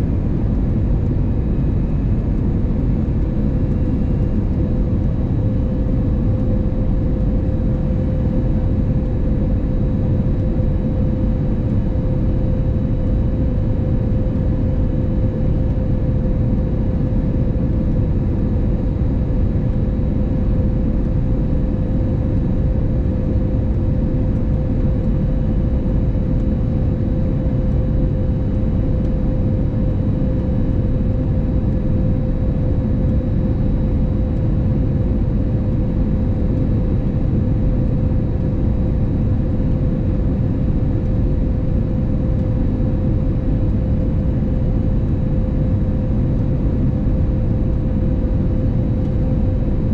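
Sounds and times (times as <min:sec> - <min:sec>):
airplane engine and airflow drone: 0:00.0 - 0:49.9
constant hum: 0:00.0 - 0:49.9.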